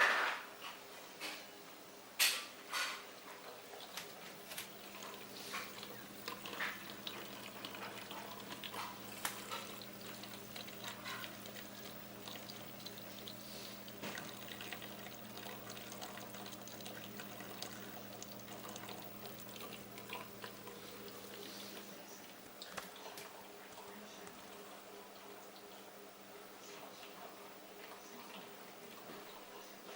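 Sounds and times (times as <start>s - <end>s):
washing machine water splashing: 3.1s - 26.0s
washing machine motor hum: 3.2s - 25.8s.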